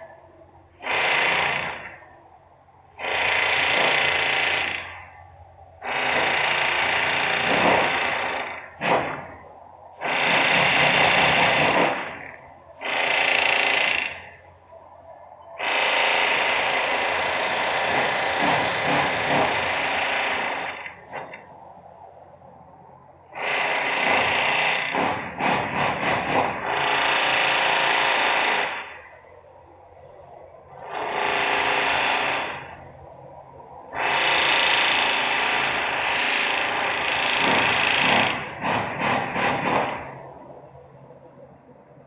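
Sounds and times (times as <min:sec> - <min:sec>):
loud power tool: 0:00.8 - 0:02.0, 0:03.0 - 0:05.0, 0:05.8 - 0:09.3, 0:10.0 - 0:14.4, 0:15.6 - 0:21.4, 0:23.3 - 0:29.1, 0:30.8 - 0:32.8, 0:34.0 - 0:40.1.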